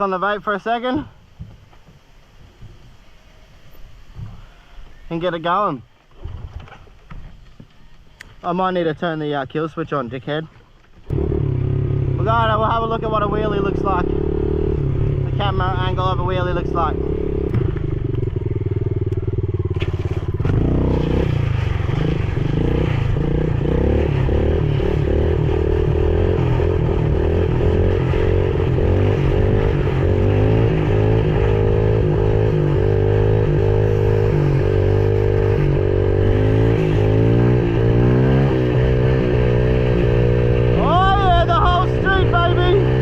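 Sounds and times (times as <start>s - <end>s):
motorbike engine revving: 11.1s - 43.0s.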